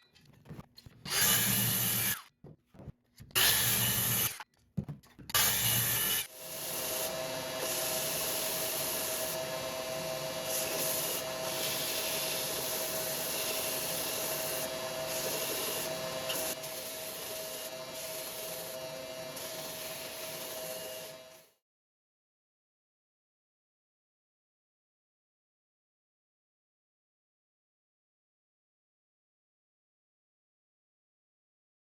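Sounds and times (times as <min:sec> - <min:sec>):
electric sander on wood: 0:05.4 - 0:21.3.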